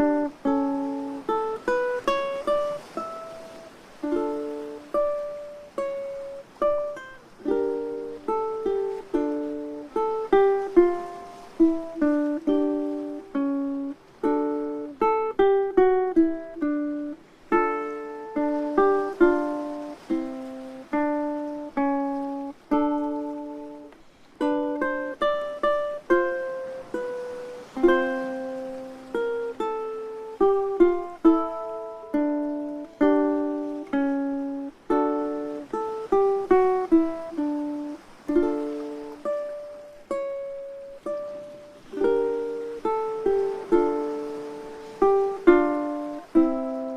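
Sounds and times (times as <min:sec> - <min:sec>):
ukulele music: 0:00.0 - 0:46.9.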